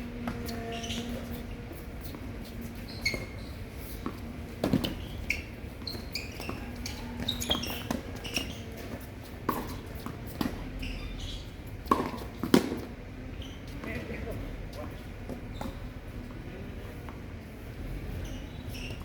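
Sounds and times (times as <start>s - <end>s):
shoe squeaks: 0.1s - 12.5s, 13.4s - 16.0s, 18.1s - 19.0s
tennis ball struck by rackets: 4.0s - 5.0s, 11.8s - 12.9s.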